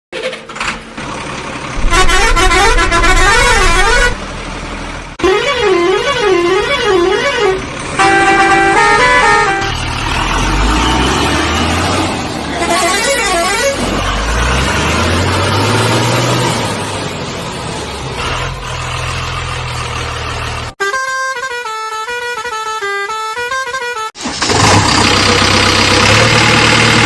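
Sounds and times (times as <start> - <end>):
heavy vehicle engine revving: 0.5 - 20.8, 24.2 - 27.0
sweeping horn-like tones: 1.8 - 4.2, 5.2 - 9.9.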